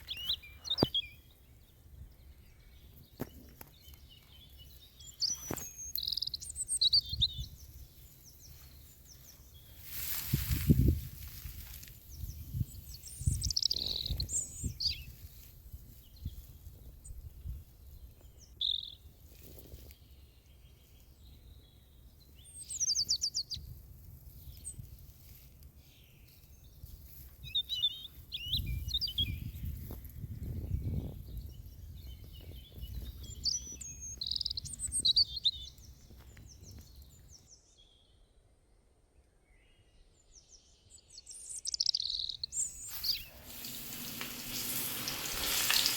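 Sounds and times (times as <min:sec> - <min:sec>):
small birds chirping: 0:00.0 - 0:38.1, 0:39.5 - 0:45.9
low uneven rumble: 0:42.8 - 0:45.9.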